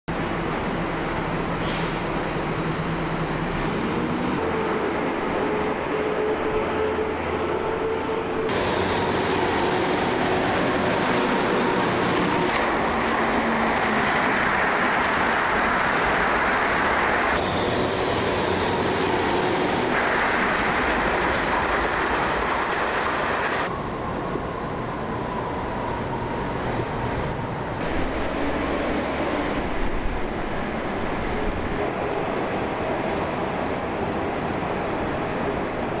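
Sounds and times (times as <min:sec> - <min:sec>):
train wheels rushing on rails: 0:00.2 - 0:23.8.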